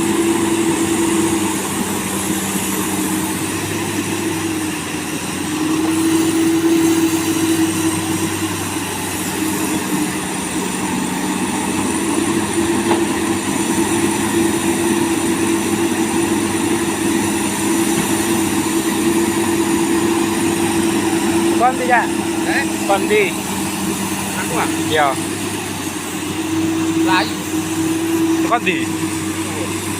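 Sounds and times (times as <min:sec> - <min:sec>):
excavator diesel engine droning: 0:00.0 - 0:29.9.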